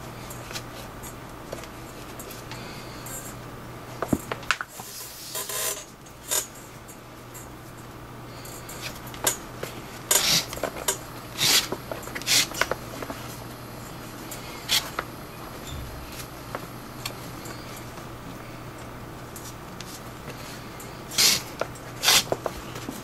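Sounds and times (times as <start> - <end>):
lace rasping through leather: 22.0 - 22.3.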